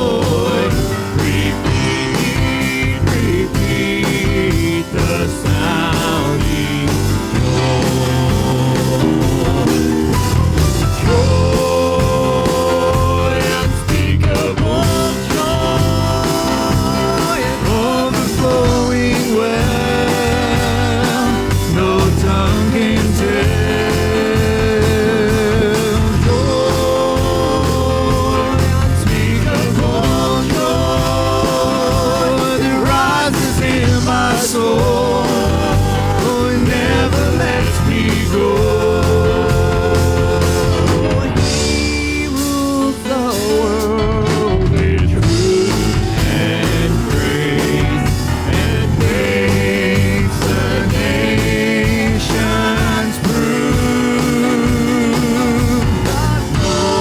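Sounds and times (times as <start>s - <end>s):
worship band with singing: 0.0s - 57.0s.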